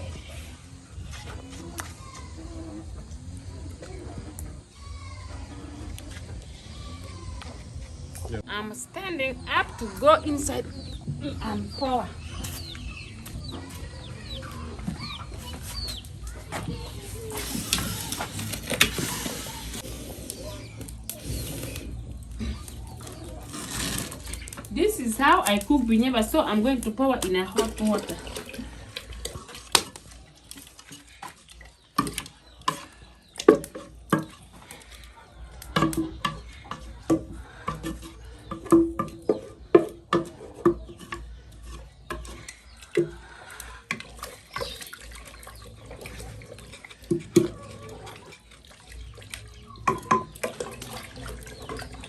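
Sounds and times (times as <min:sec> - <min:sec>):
stick scraping a cooking pot: 0:15.3 - 0:44.9
stick knocking against pot: 0:35.6 - 0:43.2.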